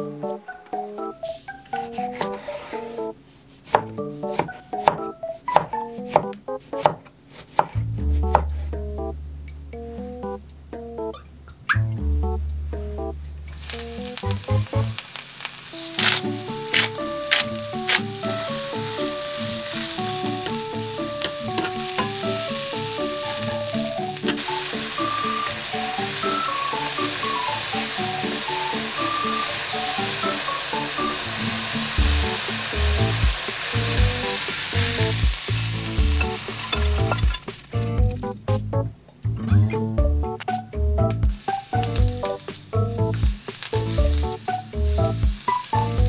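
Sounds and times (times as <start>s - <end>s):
background music with simple melody: 0.0s - 7.1s, 7.7s - 15.0s, 15.7s - 46.0s
mushrooms sizzling in oil: 13.5s - 37.9s, 41.4s - 46.0s.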